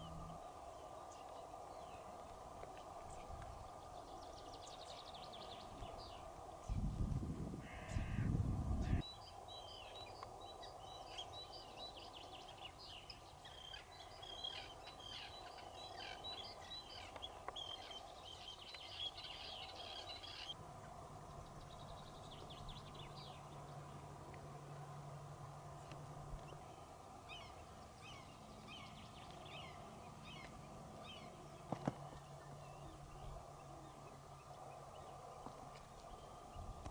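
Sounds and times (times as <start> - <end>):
low rumble on microphone: 0.0 - 2.1, 5.5 - 9.0
steady low hum: 0.0 - 36.9
small birds chirping: 7.7 - 36.9.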